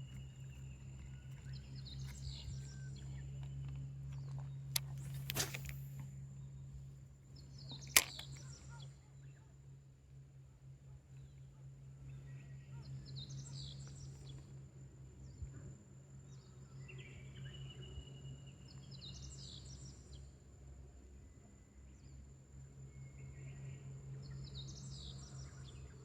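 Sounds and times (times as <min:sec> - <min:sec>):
birds chirping: 0:00.0 - 0:06.0
low hum: 0:00.0 - 0:12.7.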